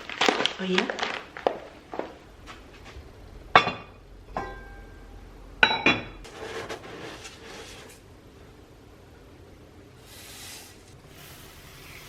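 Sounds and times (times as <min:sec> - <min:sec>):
dishes clinking: 0:03.5 - 0:06.7.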